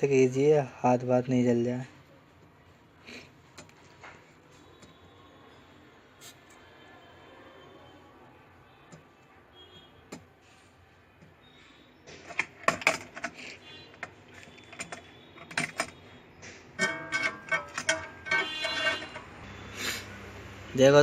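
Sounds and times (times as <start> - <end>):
metal tools tapping circuit board: 12.2 - 19.4.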